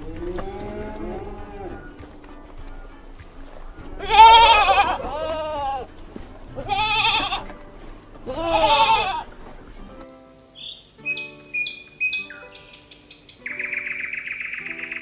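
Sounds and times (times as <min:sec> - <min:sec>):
farm animal bleating: 0:00.0 - 0:02.0, 0:03.8 - 0:05.9, 0:06.5 - 0:09.4.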